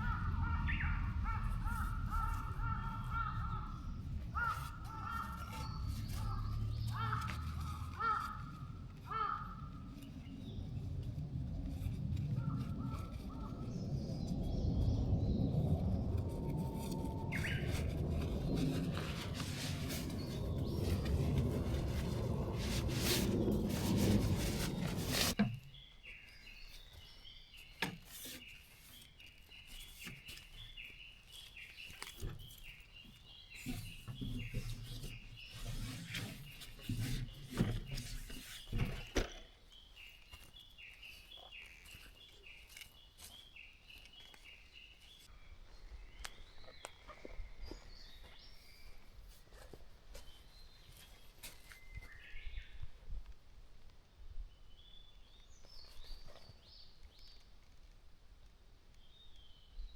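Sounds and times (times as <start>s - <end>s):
rustling: 0.0s - 45.3s
birds chirping: 0.0s - 52.8s.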